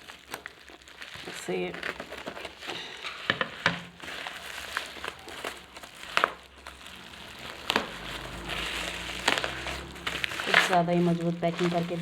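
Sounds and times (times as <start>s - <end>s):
packing material crinkling: 0.0s - 12.0s.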